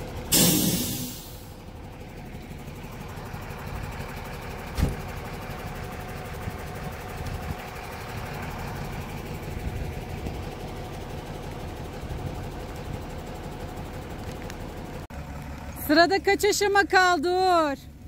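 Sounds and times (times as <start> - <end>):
car engine idling: 0.0 - 18.0
sharp thump: 4.7 - 5.1.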